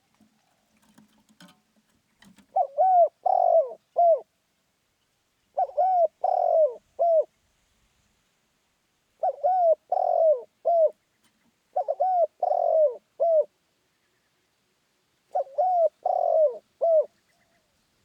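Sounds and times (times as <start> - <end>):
dove cooing: 2.3 - 4.3, 5.5 - 7.3, 9.2 - 11.0, 11.7 - 13.6, 15.3 - 17.7.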